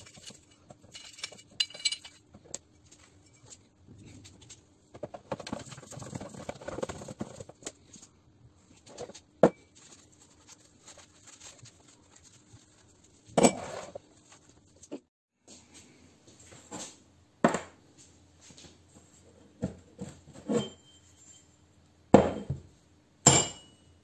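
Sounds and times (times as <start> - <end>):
metal tools rattling and clinking: 0.0 - 2.4.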